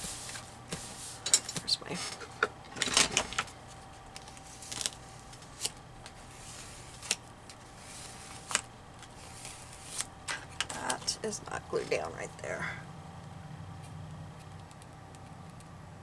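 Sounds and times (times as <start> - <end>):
paper rustling and crinkling: 3.2 - 11.1.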